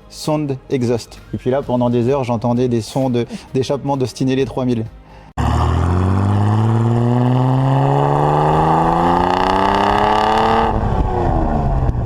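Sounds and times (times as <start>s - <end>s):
car exhaust under acceleration: 5.4s - 12.0s.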